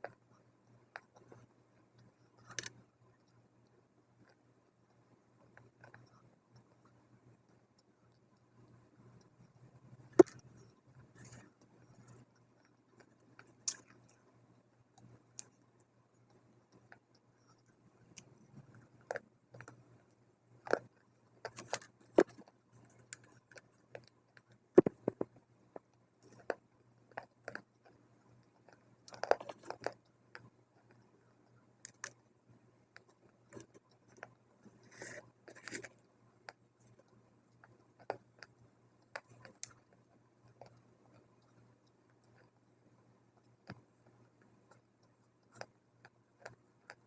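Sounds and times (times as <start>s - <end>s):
chewing dry clay crunches: 20.5s - 25.1s, 25.7s - 31.0s.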